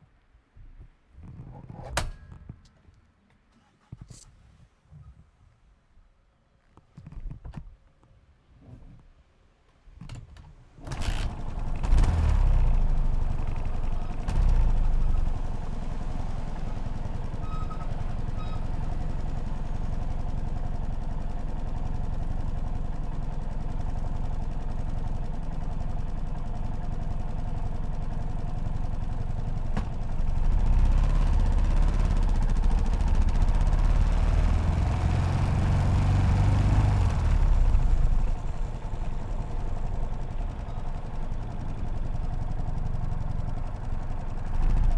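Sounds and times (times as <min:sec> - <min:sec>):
motorcycle engine starting and idling: 0:10.8 - 0:44.9.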